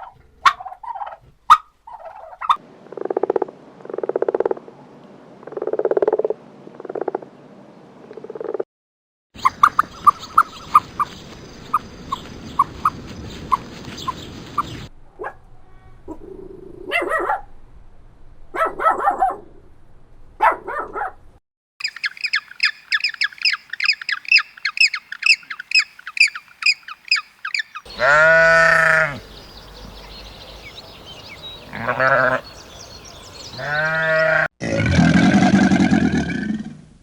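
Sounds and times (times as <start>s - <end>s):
dog barking: 0.0s - 0.9s, 15.2s - 15.4s, 16.1s - 17.5s, 18.5s - 19.5s, 20.4s - 21.2s
small bird chirping: 9.4s - 14.9s, 21.8s - 34.3s.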